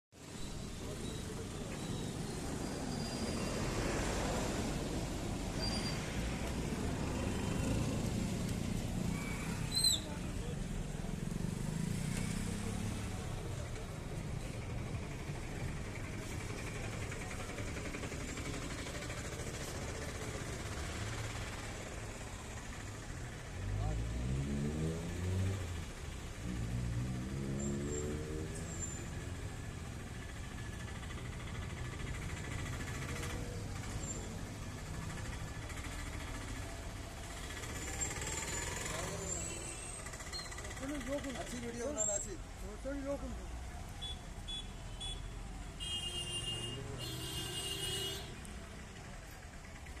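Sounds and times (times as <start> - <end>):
road traffic rumble: 0.2 - 50.0
vehicle engine running: 10.2 - 26.9.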